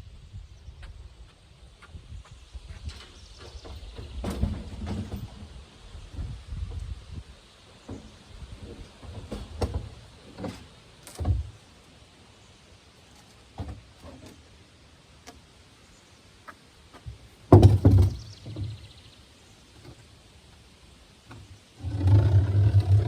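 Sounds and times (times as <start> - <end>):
knocks and thumps: 2.8 - 5.5, 17.1 - 18.8.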